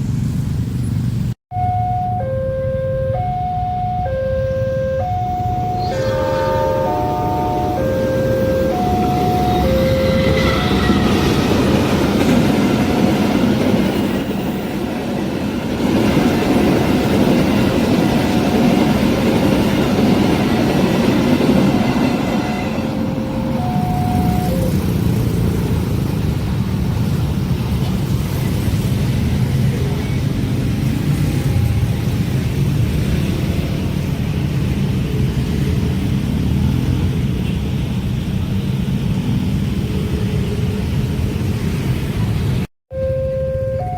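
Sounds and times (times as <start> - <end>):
two-note electronic warning tone: 1.5 - 11.4, 22.4 - 24.9, 42.9 - 43.9
train rumble and wheel noise: 5.0 - 42.7.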